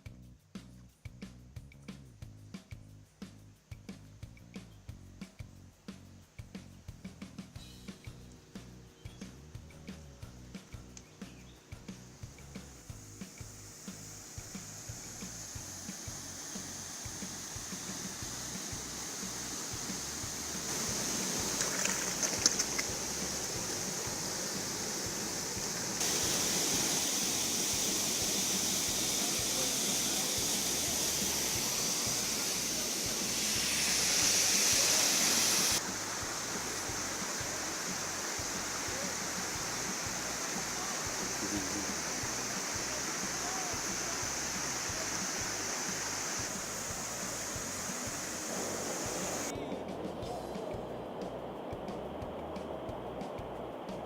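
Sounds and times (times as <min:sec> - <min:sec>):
waterfall rushing: 0:12.1 - 0:54.0
sharp clicks: 0:20.7 - 0:23.8.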